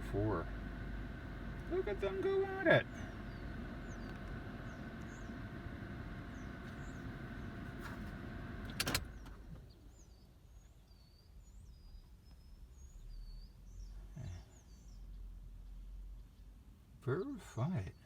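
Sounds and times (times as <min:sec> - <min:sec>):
car hum inside cabin: 0:00.0 - 0:10.6
faint high bird chirps: 0:02.9 - 0:05.4, 0:06.3 - 0:07.6, 0:09.1 - 0:16.5.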